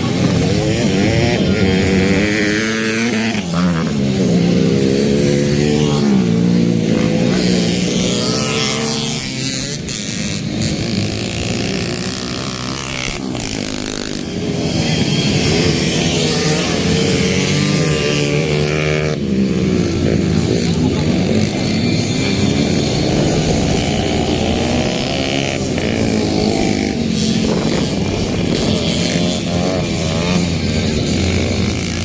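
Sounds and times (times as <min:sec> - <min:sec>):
motocross bike engines revving: 0:00.0 - 0:32.0.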